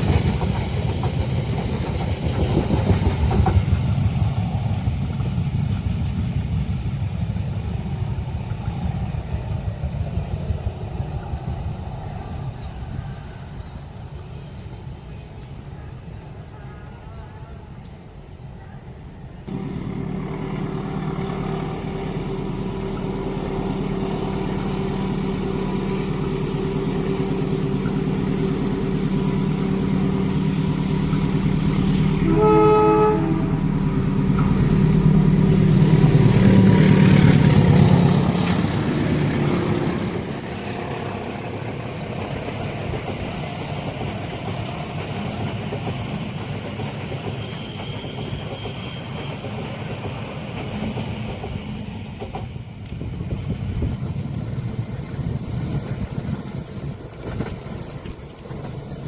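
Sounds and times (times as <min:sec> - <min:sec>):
train carriages rumbling past: 0:00.0 - 0:59.0
locomotive engine: 0:19.4 - 0:59.0
train horn blast: 0:19.5 - 0:28.2, 0:28.8 - 0:38.2.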